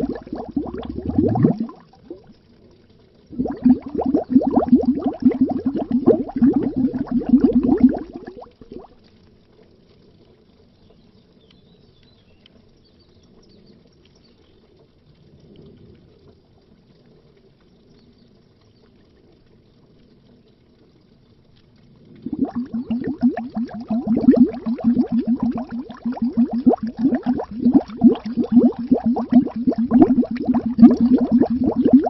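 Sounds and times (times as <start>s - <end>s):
loud rapid underwater bubbling: 0.0s - 2.3s, 3.3s - 9.0s, 22.2s - 32.0s
low water murmur: 0.0s - 11.4s, 12.7s - 32.0s.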